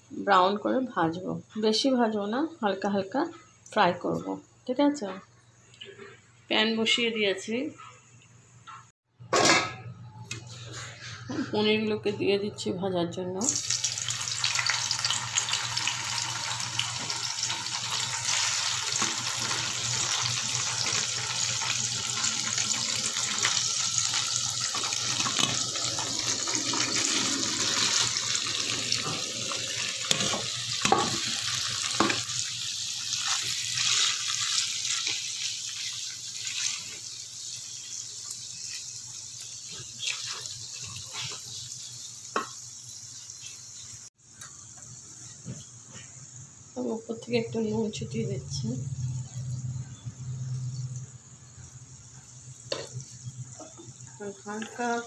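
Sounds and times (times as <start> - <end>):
cheese sizzling in hot oil: 13.4 - 55.0.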